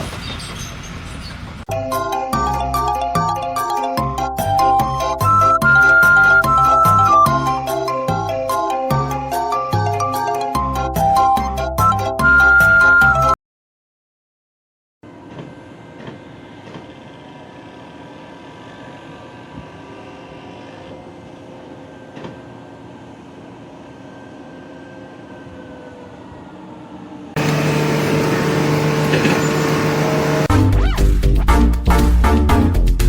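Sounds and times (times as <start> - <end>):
loud music: 29.9 - 33.0.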